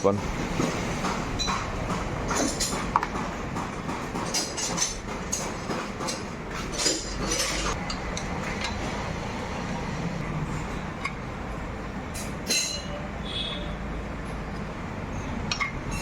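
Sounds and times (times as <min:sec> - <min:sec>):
steady background hum: 0:00.0 - 0:16.0
hand tools clinking on metal: 0:04.2 - 0:08.8.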